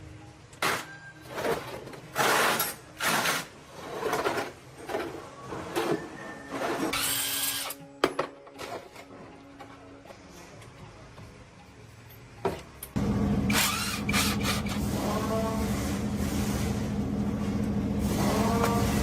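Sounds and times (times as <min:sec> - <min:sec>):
tool working in bursts: 0:13.4 - 0:15.6.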